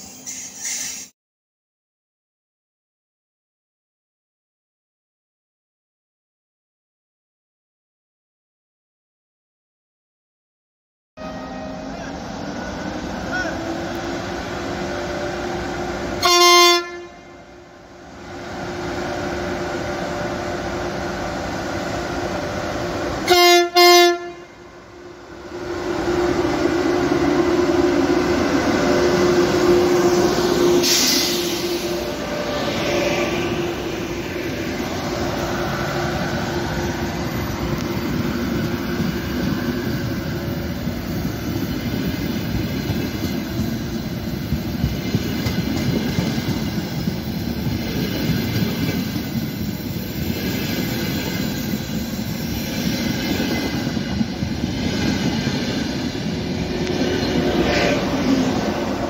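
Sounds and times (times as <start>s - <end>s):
train horn blasts: 11.2s - 12.1s, 16.2s - 17.6s, 23.2s - 25.1s, 26.2s - 33.3s
train rushing past rumbling: 11.2s - 59.0s.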